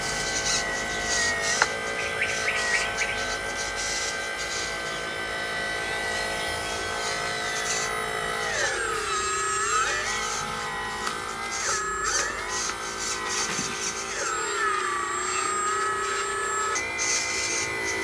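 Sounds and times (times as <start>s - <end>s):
electric motor and gearbox whining: 0.0s - 18.0s.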